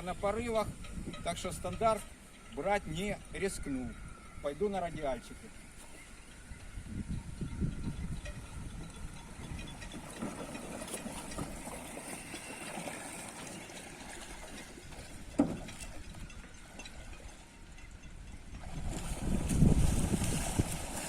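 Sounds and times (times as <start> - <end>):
low wind rumble: 6.4 - 11.8, 14.7 - 21.0
sailing gear clicking and knocking: 7.8 - 12.4, 13.7 - 17.2.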